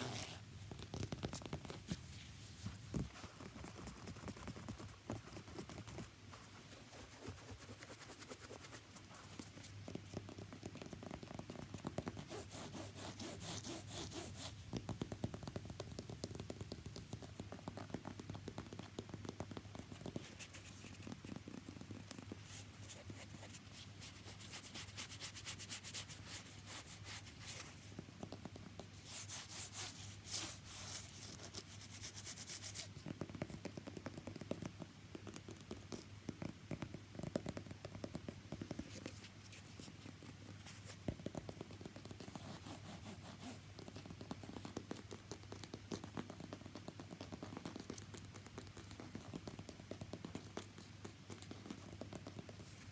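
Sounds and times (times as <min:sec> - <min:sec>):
scratching and rubbing on a shoe: 0:00.0 - 0:33.7, 0:38.5 - 0:52.9.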